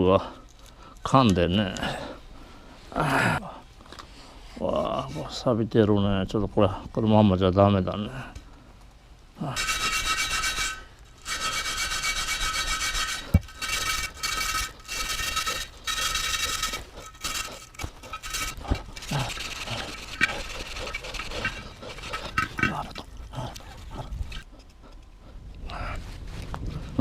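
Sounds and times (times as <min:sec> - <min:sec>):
abrasive tool scrubbing rusty rim: 0:09.4 - 0:24.5.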